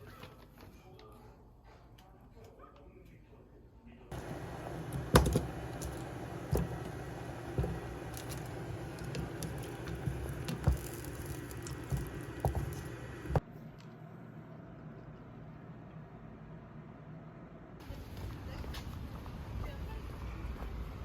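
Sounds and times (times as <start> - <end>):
irregular knocks and clicks: 4.1 - 13.4.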